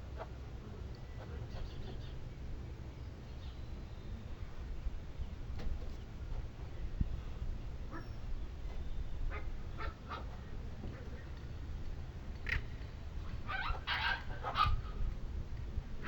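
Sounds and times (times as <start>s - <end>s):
steady low rumble: 0.0s - 16.0s
birds honking calls: 12.4s - 14.9s.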